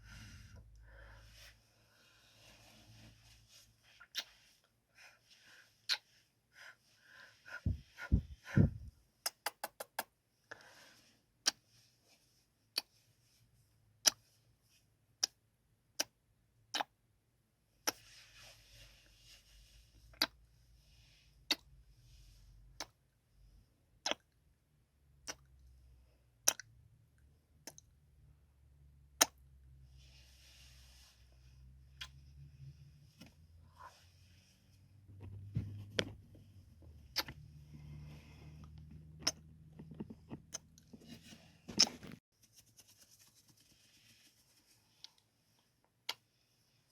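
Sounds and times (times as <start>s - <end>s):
soft breaths: 0.0s - 9.0s, 10.4s - 14.9s, 17.9s - 23.8s, 29.7s - 42.3s
wet lip smacks and kisses: 4.1s - 4.4s, 5.9s - 6.1s, 9.2s - 10.1s, 25.2s - 25.5s, 37.1s - 37.4s
sharp kiss clicks: 9.2s - 10.1s
soft hiss: 42.4s - 45.8s.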